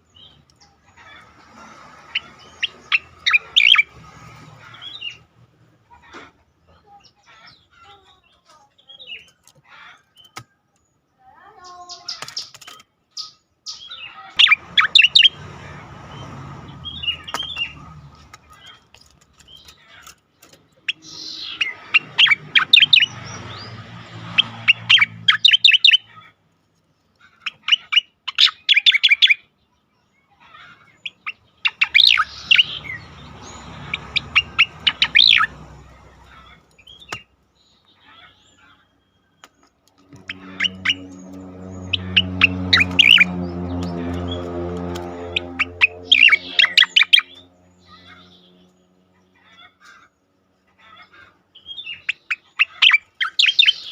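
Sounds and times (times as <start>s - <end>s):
bird rattling song: 0.0s - 5.4s, 11.9s - 26.0s, 31.0s - 37.6s, 39.4s - 48.8s, 51.6s - 53.9s
bird chirps: 2.0s - 5.3s, 5.9s - 26.3s, 27.3s - 53.9s.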